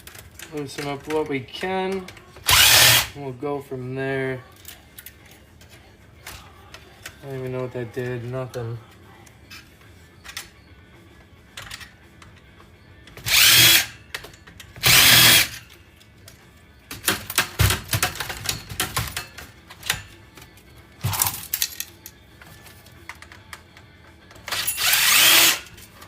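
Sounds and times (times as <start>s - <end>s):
power drill whirring: 2.4s - 3.1s, 13.2s - 14.0s, 14.8s - 15.6s, 24.5s - 25.7s
small metal parts rattling: 16.9s - 23.7s.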